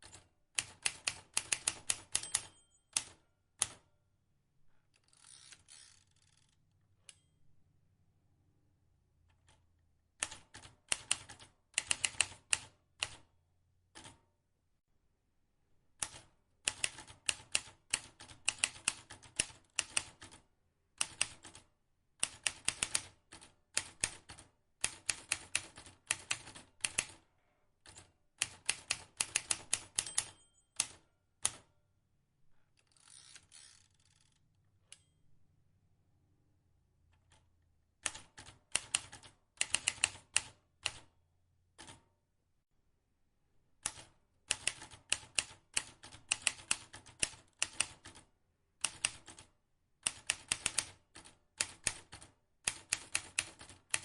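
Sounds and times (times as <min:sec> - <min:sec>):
typewriter keys clicking: 0:38.0 - 0:41.0, 0:43.8 - 0:48.2, 0:48.8 - 0:54.0.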